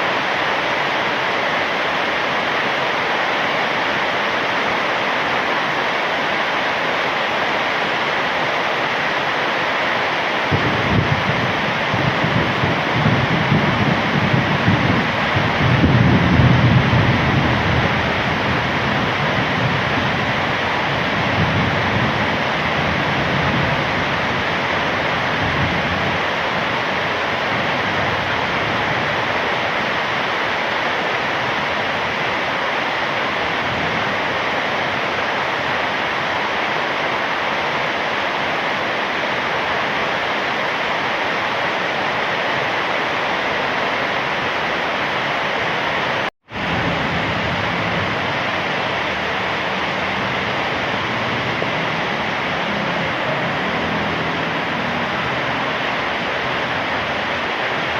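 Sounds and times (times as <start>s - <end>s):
heavy rain falling: 0.0s - 57.9s
thunder rumbling: 10.4s - 30.0s, 46.5s - 57.9s.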